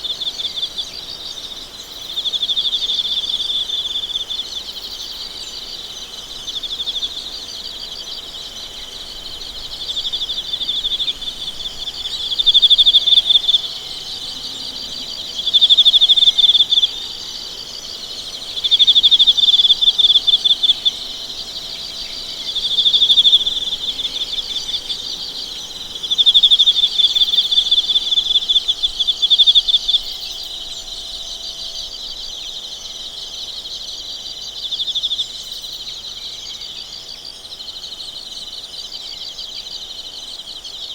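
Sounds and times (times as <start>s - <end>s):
insects trilling: 0.0s - 40.9s.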